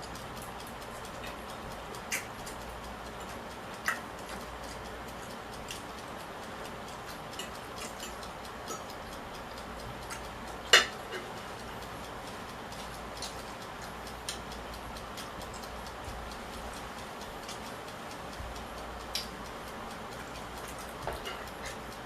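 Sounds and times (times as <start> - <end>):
steady low hiss: 0.0 - 22.0
cutlery clicking on a plate: 7.3 - 8.9, 10.1 - 11.6, 20.1 - 21.8.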